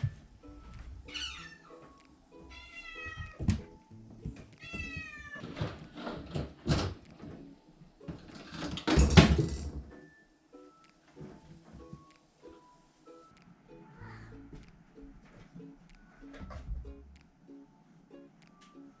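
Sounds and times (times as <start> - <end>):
kitten meowing: 1.0 - 1.8, 2.5 - 3.4, 4.6 - 5.4.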